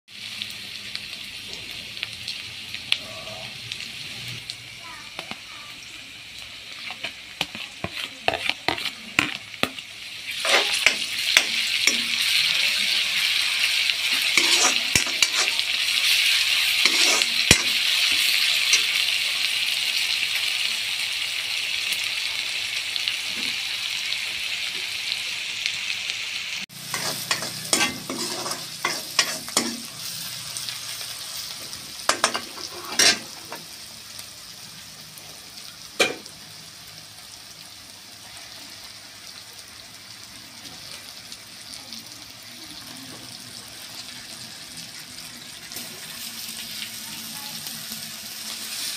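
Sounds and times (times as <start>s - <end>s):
onions sizzling in hot oil: 0.1s - 48.9s
metal spoon scraping and tapping pan: 6.8s - 9.8s, 10.4s - 12.3s, 14.2s - 15.6s, 16.8s - 18.9s, 26.8s - 29.9s, 32.1s - 33.6s.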